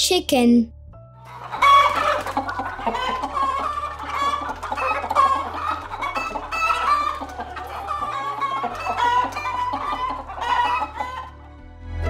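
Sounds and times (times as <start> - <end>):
hens clucking: 1.3 - 11.5
background music with low bass: 8.9 - 12.0.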